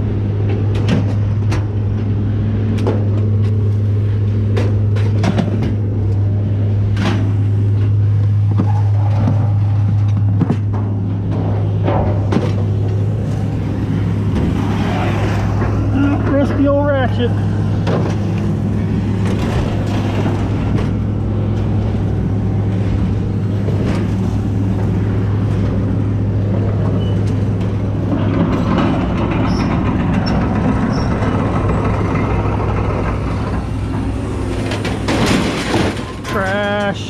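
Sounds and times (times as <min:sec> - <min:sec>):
heavy engine humming: 0:00.0 - 0:37.0
scrap metal clanking: 0:27.1 - 0:37.0
metal crash: 0:34.5 - 0:36.6.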